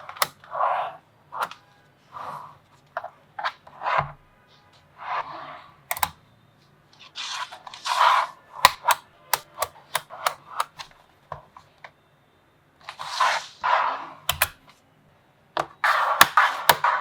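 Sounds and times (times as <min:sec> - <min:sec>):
magnetic balls clicking together: 0:08.7 - 0:10.9, 0:14.3 - 0:14.6.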